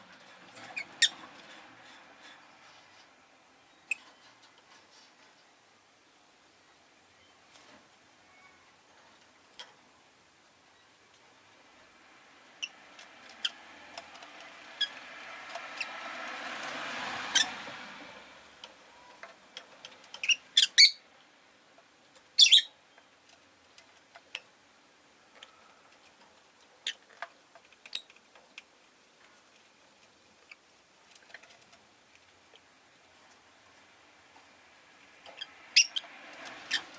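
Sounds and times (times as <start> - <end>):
vehicle passing: 0.0 - 3.2, 11.5 - 20.1, 33.7 - 36.9
small clicks and ticks: 12.7 - 16.8, 23.0 - 24.6, 25.3 - 34.5, 35.1 - 36.9
lovebird chirping: 20.2 - 21.0, 22.4 - 23.1, 35.4 - 36.0.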